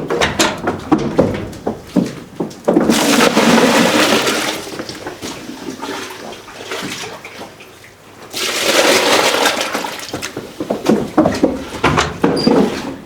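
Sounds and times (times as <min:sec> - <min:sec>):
liquid pouring and splashing: 0:02.9 - 0:07.7, 0:08.3 - 0:10.4.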